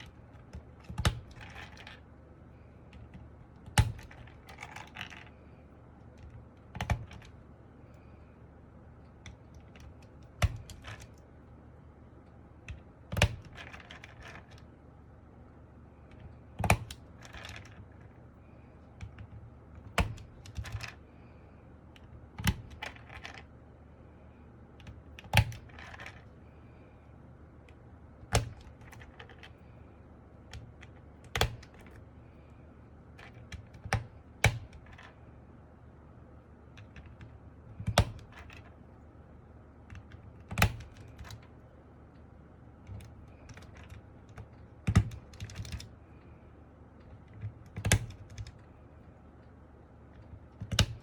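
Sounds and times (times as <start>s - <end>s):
mechanical keyboard key clacks: 22.0s - 23.4s, 30.5s - 32.0s, 39.9s - 41.4s, 42.8s - 45.9s, 47.1s - 48.6s.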